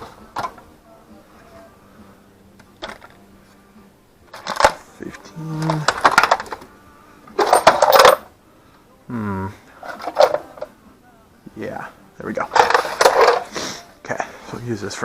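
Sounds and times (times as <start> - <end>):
metal tools clattering in toolbox: 4.3 - 4.8, 5.6 - 6.7, 7.4 - 8.3, 9.8 - 10.7, 12.5 - 13.5.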